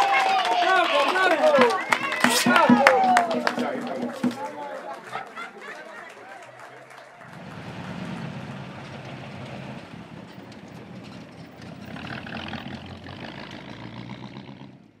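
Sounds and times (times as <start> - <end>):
car engine driving past: 6.9 - 15.0.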